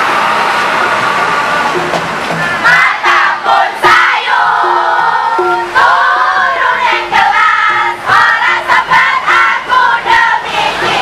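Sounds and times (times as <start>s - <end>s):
music: 0.8s - 11.0s
group of voices singing: 2.4s - 11.0s.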